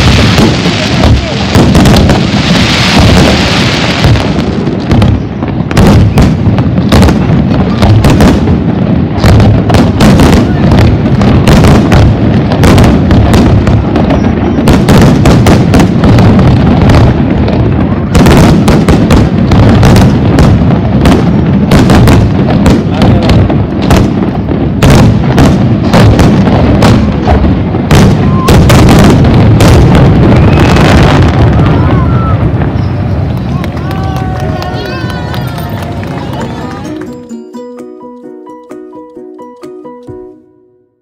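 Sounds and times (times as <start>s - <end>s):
fireworks bursting: 0.0s - 37.5s.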